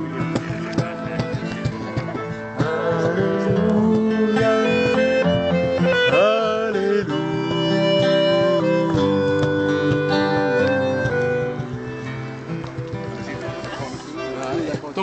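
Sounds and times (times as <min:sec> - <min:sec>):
person singing: 0:00.0 - 0:11.5
acoustic guitar playing: 0:00.0 - 0:15.0.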